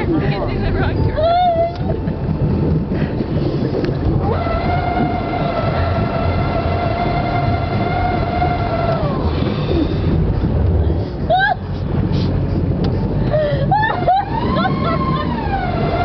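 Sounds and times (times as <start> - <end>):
motor rumble: 0.0 - 16.0
wind: 0.0 - 16.0
long horn blast: 4.2 - 9.6, 13.8 - 16.0.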